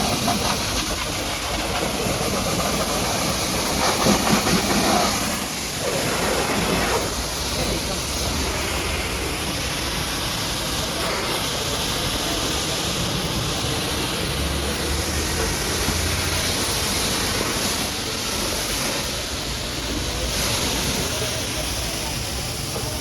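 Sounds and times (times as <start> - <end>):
pressure washer spraying: 0.0 - 23.0.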